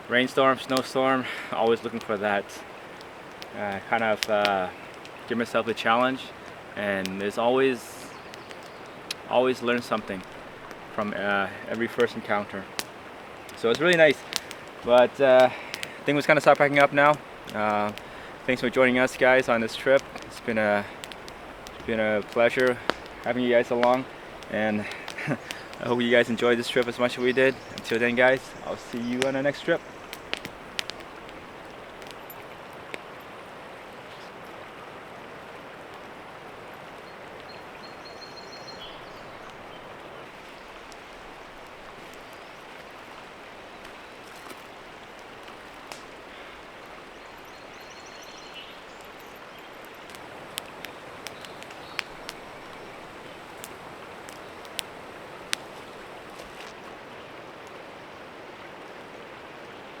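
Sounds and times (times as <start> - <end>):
creek water flowing: 0.0 - 60.0
sharp clicks: 8.2 - 11.1, 13.5 - 32.4, 49.8 - 56.8.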